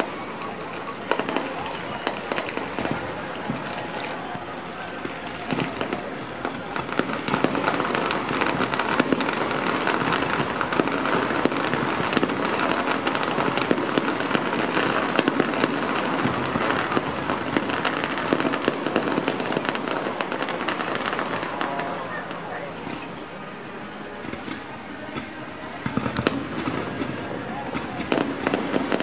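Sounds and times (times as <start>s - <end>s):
fireworks bursts and crackling: 0.0s - 29.0s.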